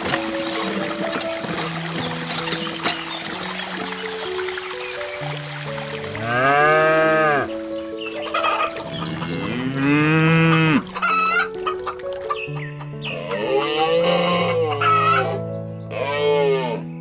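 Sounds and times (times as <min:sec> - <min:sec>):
background music: 0:00.0 - 0:17.0
cow mooing: 0:06.1 - 0:07.5, 0:09.1 - 0:10.9, 0:13.1 - 0:16.8.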